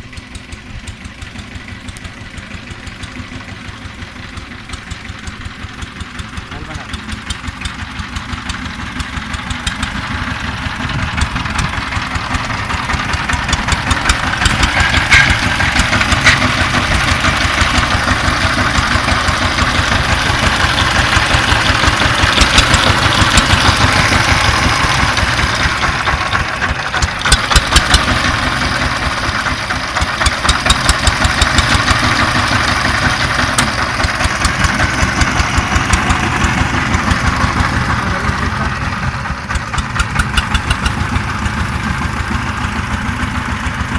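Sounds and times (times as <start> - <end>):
tiller engine chugging: 0.0 - 43.9
sharp clacks: 13.0 - 17.8, 39.5 - 41.2.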